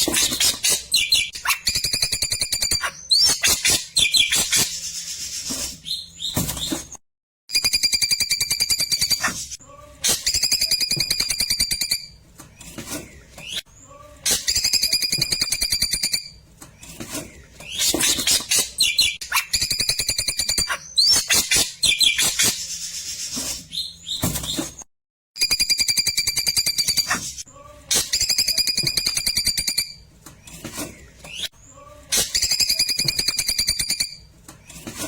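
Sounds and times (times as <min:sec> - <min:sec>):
bird singing trilled phrases: 0:00.4 - 0:04.7, 0:17.7 - 0:22.6.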